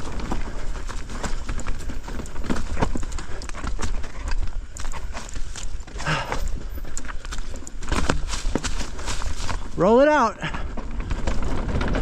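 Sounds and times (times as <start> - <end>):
bike clattering over rocks: 0.0 - 12.0.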